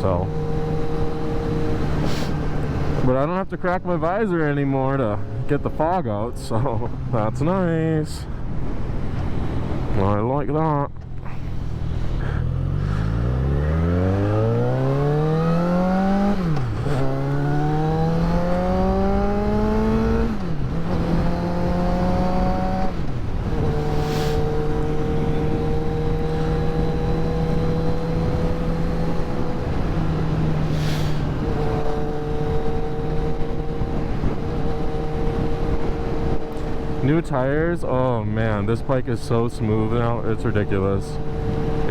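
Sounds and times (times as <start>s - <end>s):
motorcycle engine accelerating: 0.0s - 7.9s, 11.0s - 41.9s.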